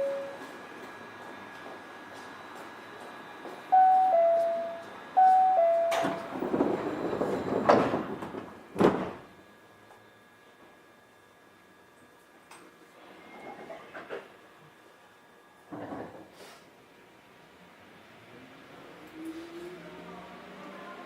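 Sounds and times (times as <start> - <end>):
two-note door chime: 0.0 - 0.4, 3.7 - 6.3
sliding train doors closing: 4.3 - 9.3.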